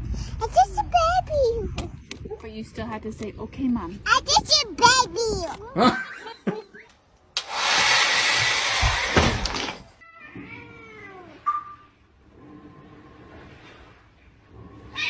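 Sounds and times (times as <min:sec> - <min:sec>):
cat meowing: 0:10.0 - 0:11.8.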